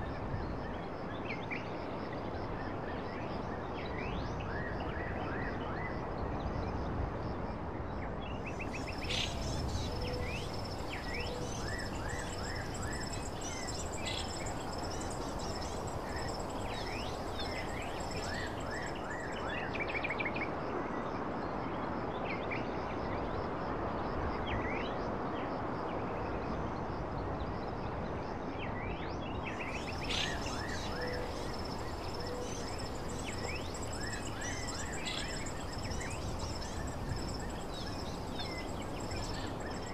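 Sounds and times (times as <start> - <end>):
high insect trills: 8.5 - 20.0, 29.5 - 39.9
bird chirps: 8.6 - 19.6, 29.6 - 39.9.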